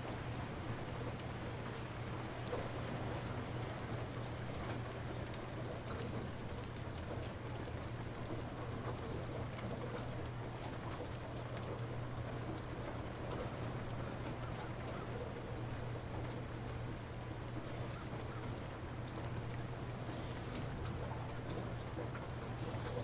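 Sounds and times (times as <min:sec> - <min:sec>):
light rain falling: 0:00.0 - 0:23.0
faint drip ticks: 0:00.1 - 0:23.0.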